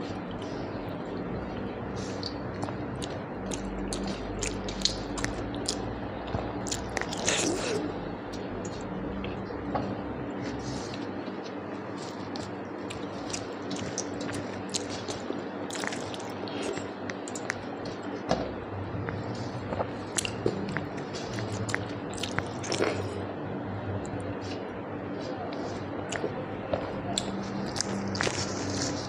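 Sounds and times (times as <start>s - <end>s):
wet chewing and mouth smacking: 2.0s - 7.9s, 11.9s - 18.1s, 19.1s - 23.2s, 27.1s - 29.0s.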